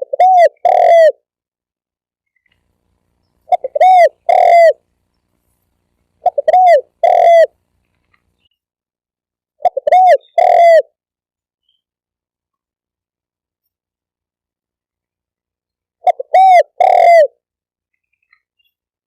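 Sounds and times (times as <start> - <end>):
dove cooing: 0.0 - 1.2, 3.4 - 4.8, 6.2 - 7.6, 9.6 - 11.0, 16.0 - 17.4.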